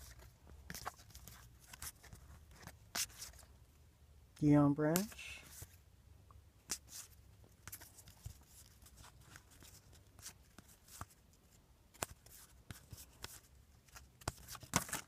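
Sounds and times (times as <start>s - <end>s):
trading cards clicking and rustling: 4.9s - 5.7s, 11.9s - 15.0s.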